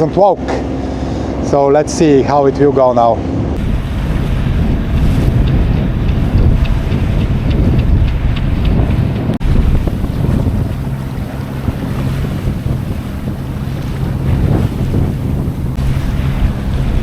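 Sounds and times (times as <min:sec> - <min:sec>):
sea noise around hull: 0:00.0 - 0:17.0
steady low drone: 0:00.0 - 0:17.0
wind buffeting microphone: 0:00.0 - 0:17.0.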